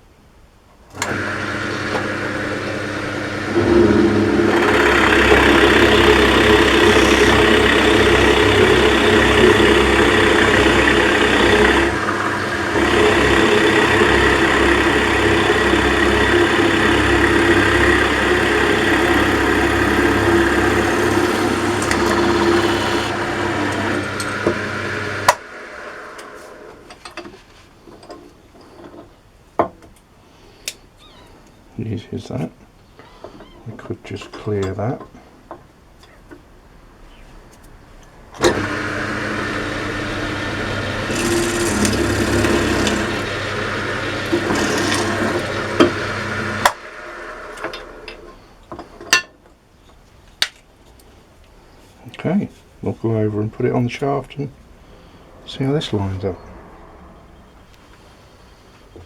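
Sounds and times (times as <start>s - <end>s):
electric drill motor: 0.9s - 26.9s, 38.4s - 48.5s
drill bit boring through wood: 1.0s - 26.9s, 38.4s - 48.4s.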